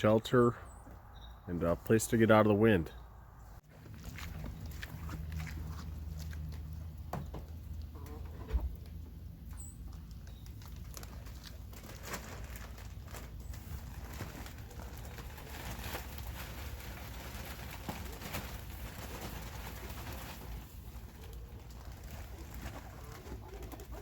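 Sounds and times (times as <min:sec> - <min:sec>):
chickens pecking and scratching: 0:03.7 - 0:24.0.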